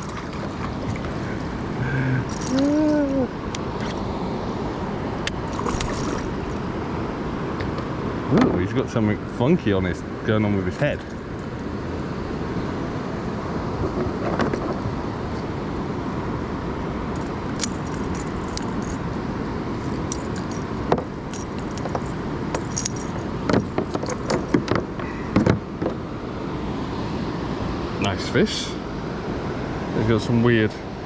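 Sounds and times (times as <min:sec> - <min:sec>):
fishing tackle clinking: 0:00.0 - 0:03.3, 0:17.2 - 0:24.7.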